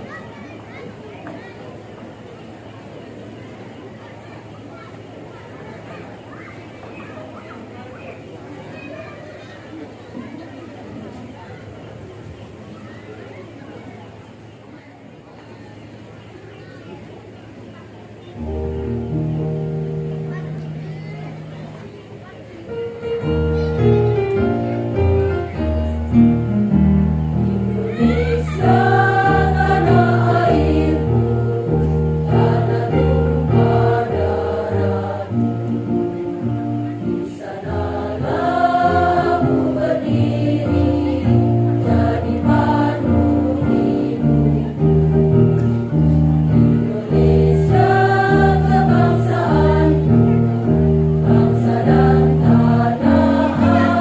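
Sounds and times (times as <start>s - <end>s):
instrumental chord accompaniment: 18.4s - 54.0s
women's choir singing: 27.2s - 36.0s, 37.2s - 45.0s, 46.5s - 54.0s.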